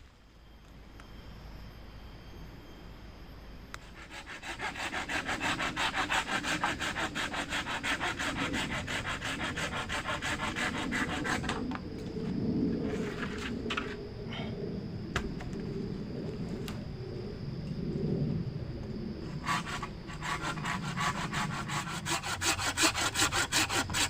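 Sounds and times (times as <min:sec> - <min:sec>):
hand saw cutting wood: 0:04.0 - 0:11.6, 0:19.4 - 0:24.0.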